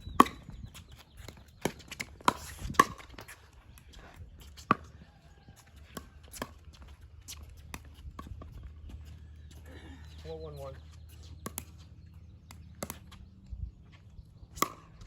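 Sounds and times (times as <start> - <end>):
paddles hitting plastic ball: 11.4 - 11.8.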